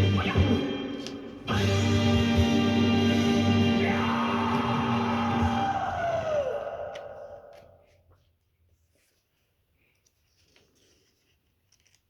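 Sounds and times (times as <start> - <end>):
background music with sustained chords: 0.0 - 5.6
steady bass line: 0.0 - 6.1.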